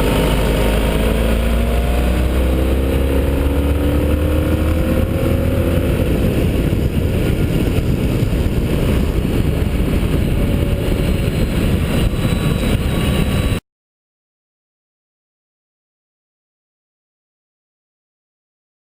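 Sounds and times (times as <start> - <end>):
motorcycle engine running: 0.0 - 13.4
wind rumble on microphone: 0.0 - 13.6.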